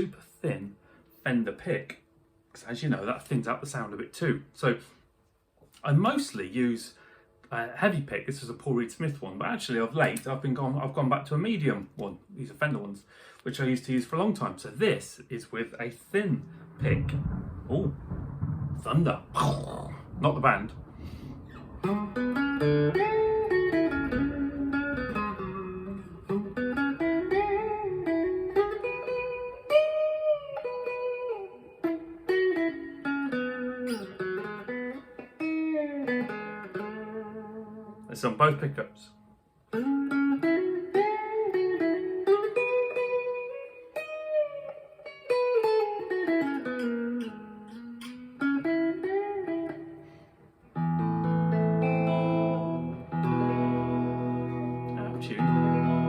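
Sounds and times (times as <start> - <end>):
guitar chord ringing: 16.3 - 18.4, 21.6 - 38.0, 50.8 - 56.0
electric guitar lead lines: 16.3 - 38.1, 39.7 - 56.0.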